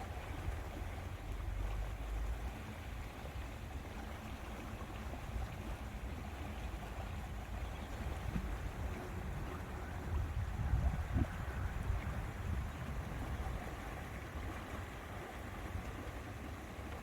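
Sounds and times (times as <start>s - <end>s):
wind rumble on microphone: 5.4s - 16.0s.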